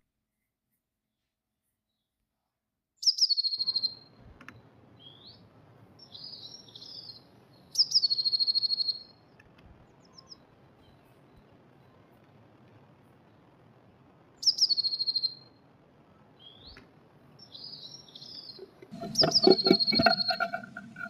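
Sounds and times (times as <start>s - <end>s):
soft bird twittering: 3.0s - 4.2s, 6.0s - 12.1s, 14.4s - 15.5s, 17.4s - 21.0s
bird song with trill: 3.0s - 5.4s, 6.0s - 12.2s, 14.4s - 15.5s, 16.2s - 16.8s, 17.4s - 21.0s.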